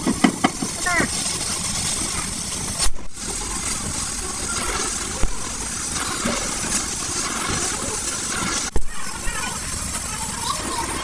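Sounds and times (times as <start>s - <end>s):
mechanical running noise: 0.0s - 11.0s.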